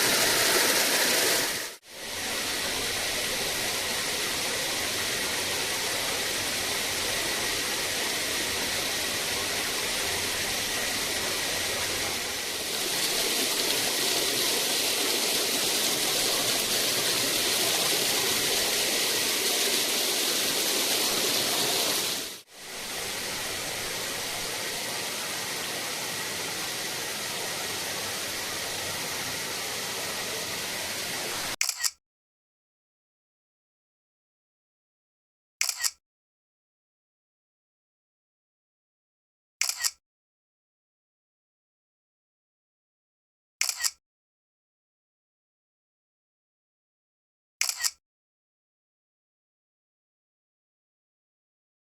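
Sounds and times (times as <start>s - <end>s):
waterfall roaring: 0.0s - 31.6s.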